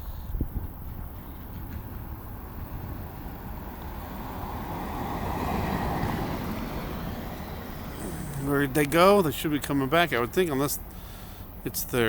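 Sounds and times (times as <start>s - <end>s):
road vehicle passing: 0.7s - 12.0s.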